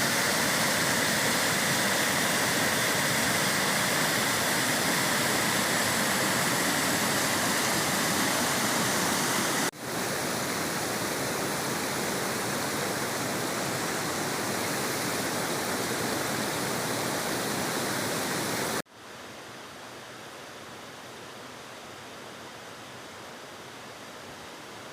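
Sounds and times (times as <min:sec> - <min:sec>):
waterfall rushing: 0:00.0 - 0:18.8.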